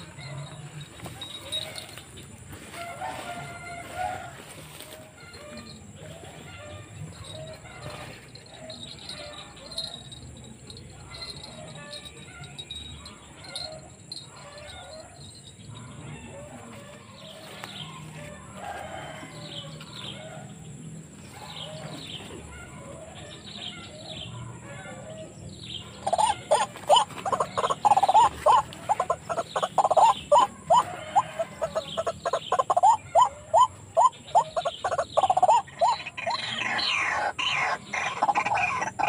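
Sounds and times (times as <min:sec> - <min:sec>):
waterhen calls: 0:26.0 - 0:39.0.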